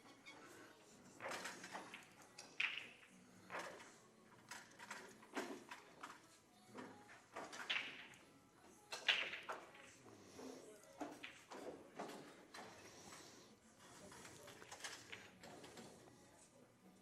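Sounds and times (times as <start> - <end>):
pool balls clattering: 0.4 - 16.1.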